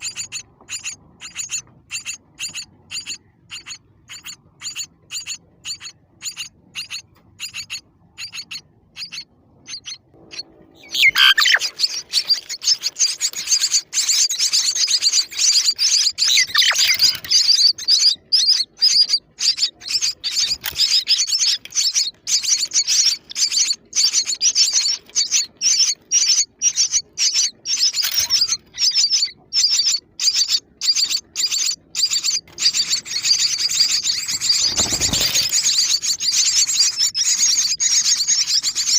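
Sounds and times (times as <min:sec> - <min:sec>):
baby birds chirping: 0:00.0 - 0:38.9.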